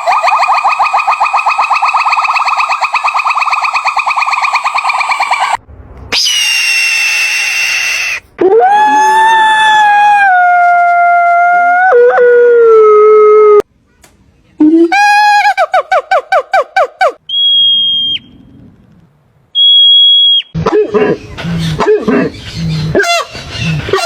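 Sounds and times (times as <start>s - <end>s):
high whistle-like tones: 0.0s - 8.2s, 17.3s - 18.4s, 19.6s - 20.6s.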